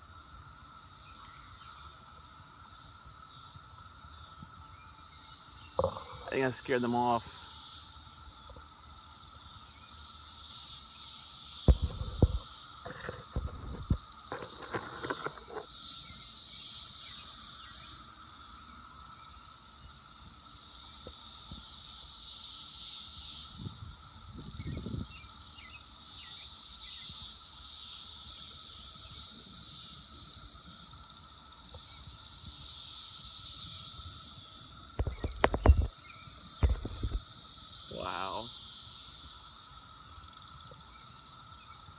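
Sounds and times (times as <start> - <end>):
cicadas buzzing: 0.0 - 41.9
low thumps: 11.7 - 12.4, 36.6 - 37.2.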